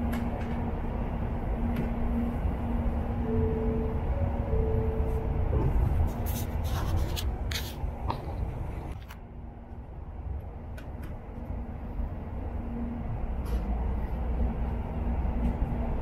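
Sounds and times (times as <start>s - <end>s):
train rumble and hum: 0.0s - 16.0s
close rubbing and scraping: 6.1s - 7.8s.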